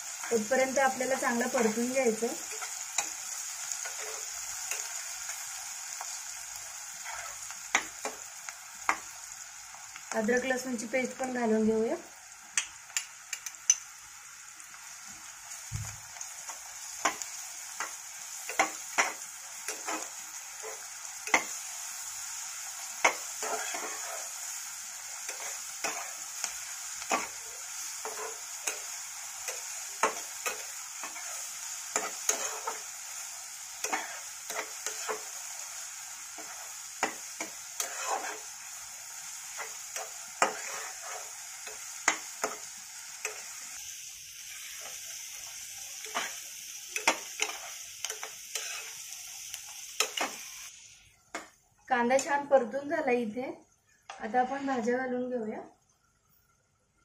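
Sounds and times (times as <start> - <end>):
onion sizzling in oil: 0.0 - 57.0
spatula scraping metal pot: 23.4 - 24.3, 37.8 - 38.4, 40.0 - 41.3.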